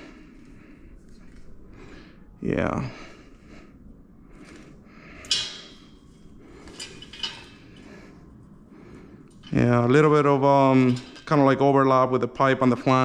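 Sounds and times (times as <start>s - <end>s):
metal pipes clanking: 5.2s - 8.2s, 9.3s - 13.0s.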